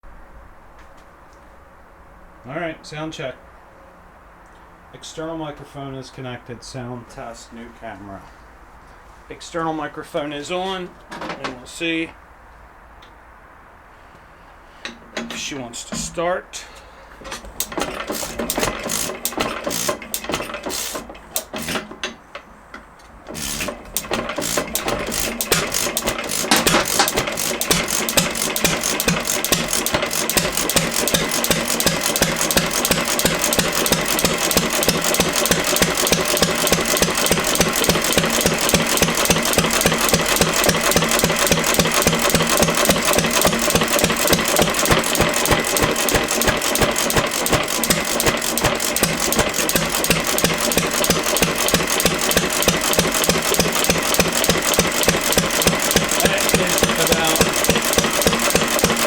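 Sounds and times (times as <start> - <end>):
gas engine starting and running: 17.2 - 59.0.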